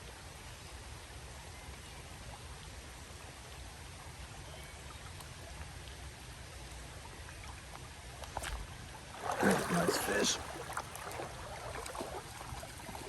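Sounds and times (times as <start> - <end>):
flowing water: 3.1 - 13.0
rain falling on creek: 7.7 - 13.0.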